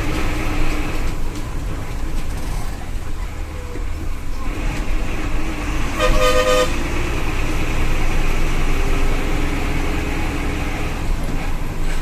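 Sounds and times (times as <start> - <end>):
bus engine rumble: 0.0 - 12.0
road noise: 0.0 - 12.0
vehicle horn: 6.0 - 6.8.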